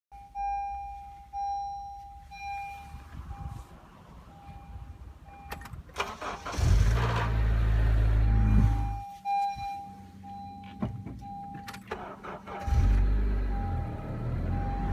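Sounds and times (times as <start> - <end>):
car warning chime: 0.1 - 3.7, 4.3 - 6.6, 8.2 - 14.9
car engine cranking and idling: 0.1 - 14.9
grinding at engine start: 5.9 - 8.2, 11.9 - 13.6.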